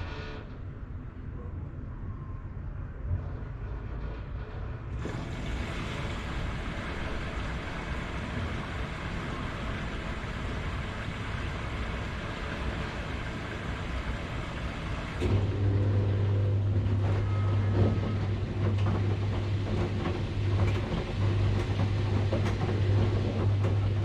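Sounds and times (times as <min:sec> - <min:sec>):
washing machine humming: 0:04.8 - 0:24.0.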